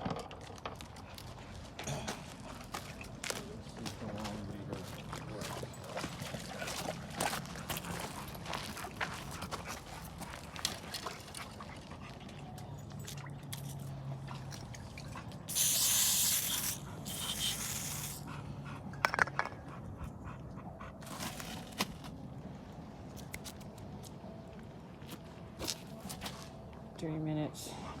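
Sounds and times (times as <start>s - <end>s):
spray bottle hissing: 15.5s - 18.2s.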